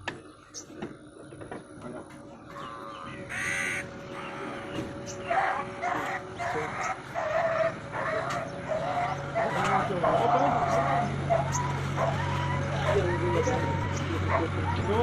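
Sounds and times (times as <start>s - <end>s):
animal high-pitched cries: 2.6s - 3.9s, 5.1s - 15.0s.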